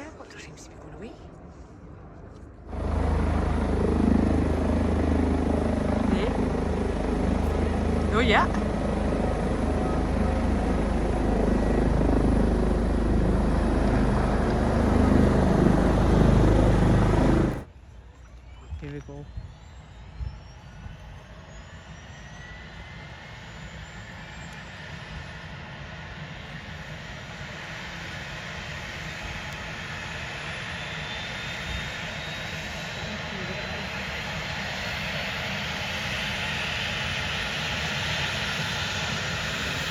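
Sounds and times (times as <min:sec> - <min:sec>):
helicopter rotor and turbine: 0:00.0 - 0:39.9
faint rising whine: 0:01.4 - 0:24.6.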